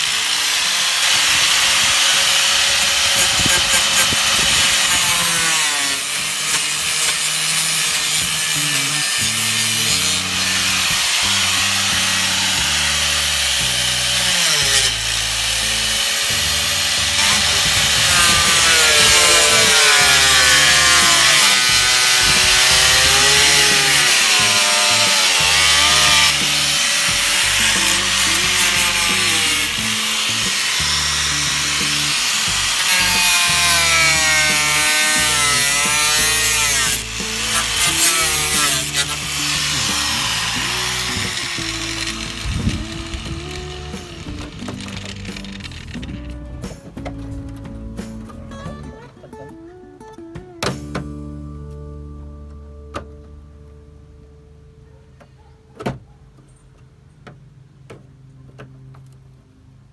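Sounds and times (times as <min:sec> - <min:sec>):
power tool grinding sheet metal: 0:00.0 - 0:47.2
background music with bass line: 0:02.8 - 0:54.6.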